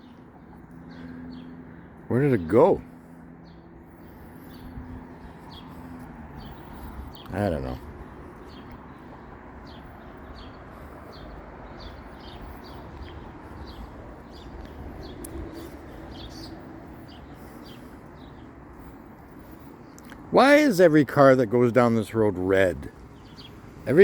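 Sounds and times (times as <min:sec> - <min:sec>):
distant traffic rumble: 0:00.0 - 0:24.0
small bird chirping: 0:03.4 - 0:20.2.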